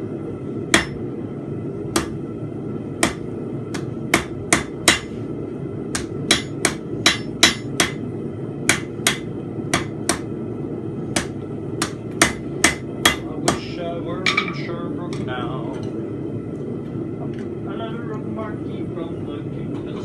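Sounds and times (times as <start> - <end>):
hammer striking steel on anvil: 0.7 - 1.0, 2.0 - 2.2, 3.0 - 5.2, 6.0 - 8.0, 8.7 - 10.3, 11.1 - 14.7.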